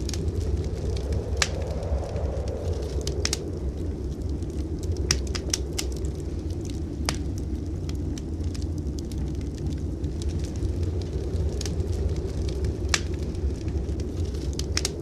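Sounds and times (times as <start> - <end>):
low rumble of blizzard wind: 0.0 - 15.0
wood fire crackling: 0.0 - 15.0.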